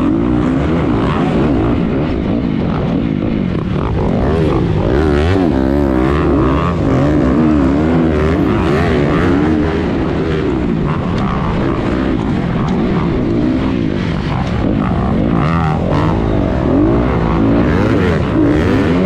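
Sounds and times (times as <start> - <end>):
motocross bike engine revving: 0.0 - 19.0.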